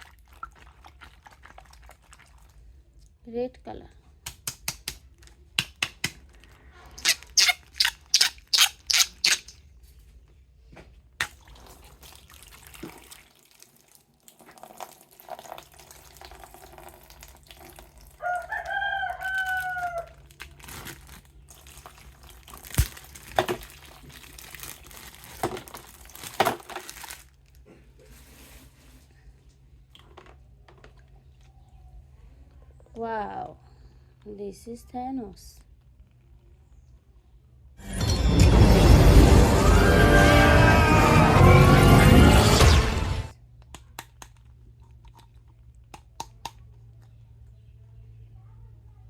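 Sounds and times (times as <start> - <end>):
rooster crowing: 18.2 - 20.3.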